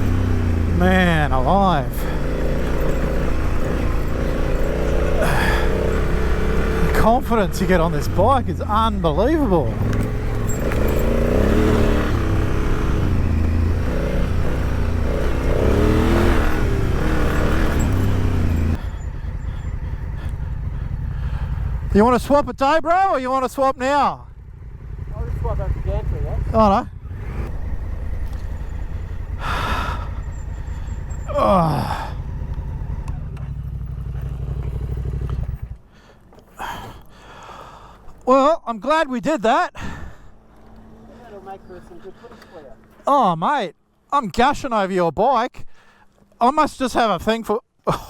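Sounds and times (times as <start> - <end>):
motorcycle engine revving: 0.0 - 22.4, 23.8 - 35.8.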